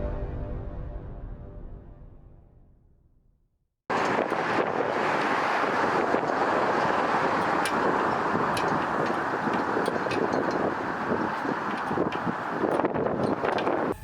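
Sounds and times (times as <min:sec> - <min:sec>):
road traffic noise: 0:03.9 - 0:14.0
wind on microphone: 0:03.9 - 0:14.0.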